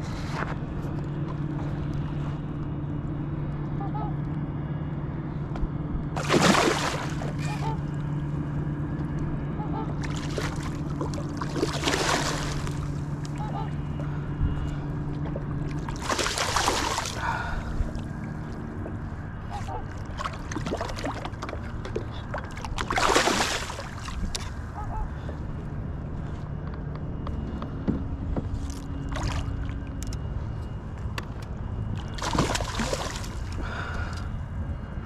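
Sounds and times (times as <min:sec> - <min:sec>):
steady low rumble: 0:00.0 - 0:35.0
water splashes: 0:06.2 - 0:07.9, 0:10.0 - 0:13.6, 0:15.6 - 0:24.8, 0:28.6 - 0:29.9, 0:32.0 - 0:33.8
water sloshing around kayak hull: 0:06.2 - 0:08.1, 0:10.0 - 0:25.4, 0:28.3 - 0:30.2, 0:32.0 - 0:33.7.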